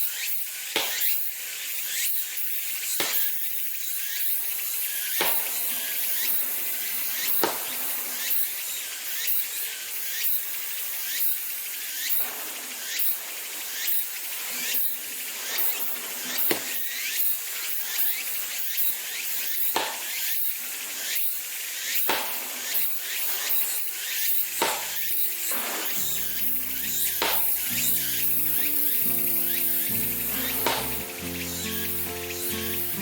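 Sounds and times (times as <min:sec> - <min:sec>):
insects chirping: 0:03.5 - 0:12.2, 0:22.6 - 0:33.0
sharp knocks: 0:24.6 - 0:29.2, 0:29.9 - 0:31.1.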